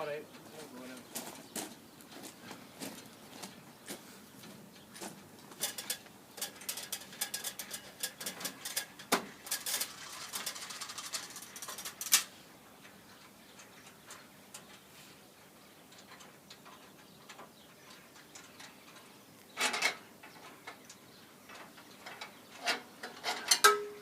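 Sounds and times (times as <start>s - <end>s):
scaffold fittings clattering: 5.6s - 12.3s, 19.6s - 20.6s, 21.5s - 24.0s.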